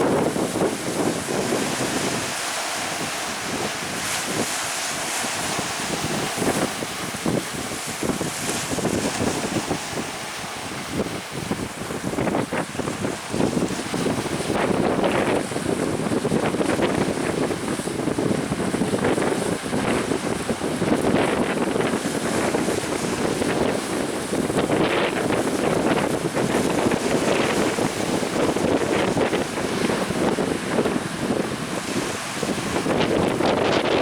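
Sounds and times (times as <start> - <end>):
waves splashing against boat: 0.0 - 34.0
wind buffeting microphone: 0.0 - 34.0.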